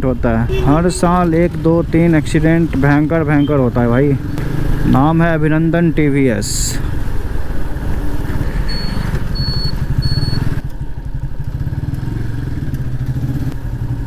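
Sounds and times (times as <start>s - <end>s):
motorcycle engine running: 0.0s - 14.0s
short high-pitched beeps: 8.7s - 10.5s.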